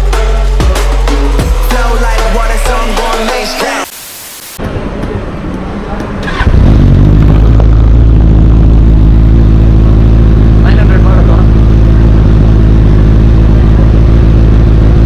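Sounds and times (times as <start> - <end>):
motorcycle engine starting and idling: 6.2 - 15.0.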